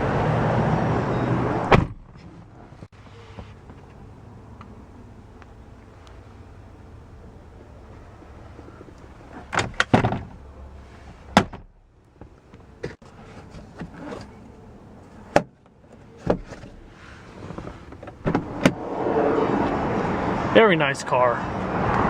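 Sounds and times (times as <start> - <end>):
car parts clicking and knocking: 8.8 - 10.4, 11.1 - 18.8.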